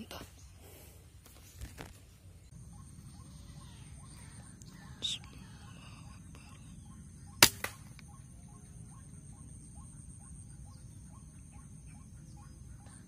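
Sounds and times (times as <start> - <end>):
insects buzzing and chirping: 0.0 - 13.0
air rifle shot: 7.4 - 8.0.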